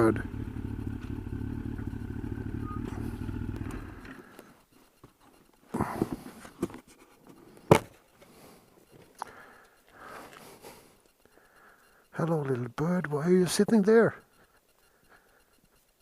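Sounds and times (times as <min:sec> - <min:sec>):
motorcycle engine idling: 0:00.0 - 0:05.1.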